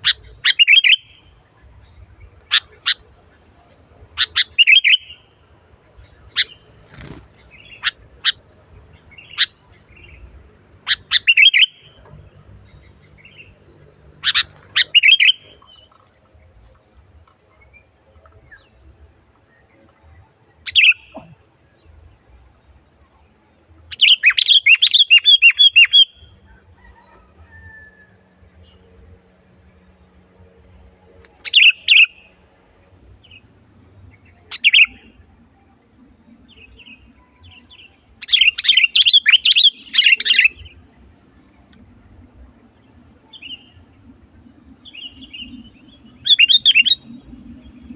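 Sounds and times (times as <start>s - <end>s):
bird calling: 0.0s - 1.4s, 4.1s - 5.3s, 10.8s - 12.2s, 12.8s - 16.4s, 23.9s - 28.1s, 31.3s - 32.4s, 34.3s - 35.2s, 36.6s - 40.8s, 44.8s - 47.2s.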